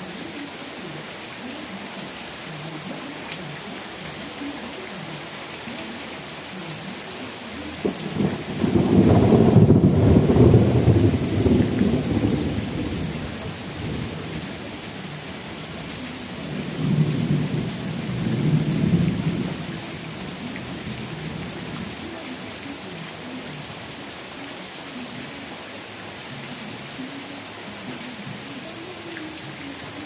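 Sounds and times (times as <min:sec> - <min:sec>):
steady rain: 0:00.0 - 0:30.0
rolling thunder: 0:07.8 - 0:14.7, 0:16.5 - 0:22.0.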